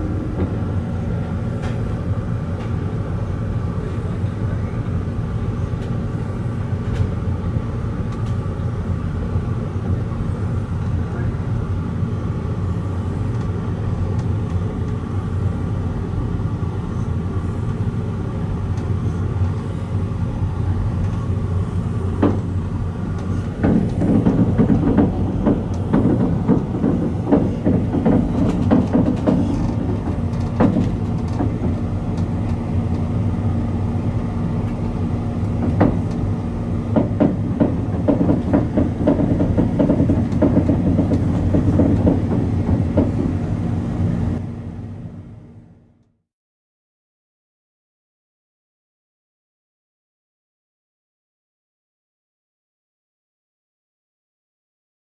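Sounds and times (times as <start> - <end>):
train rumbling on rails: 0.0 - 46.0
wheels clicking over track: 23.1 - 33.1, 34.6 - 43.6.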